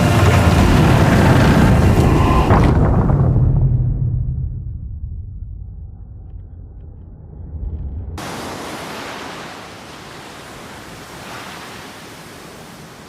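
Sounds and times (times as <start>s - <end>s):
water rushing: 0.0s - 2.6s, 8.2s - 13.0s
deep rumble: 0.0s - 8.2s.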